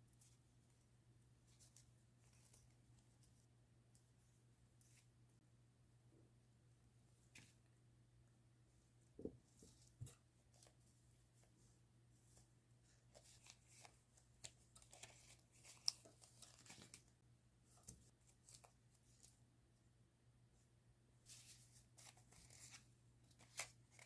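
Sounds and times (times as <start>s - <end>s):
paper rustling and crinkling: 12.3s - 17.1s, 21.3s - 24.0s.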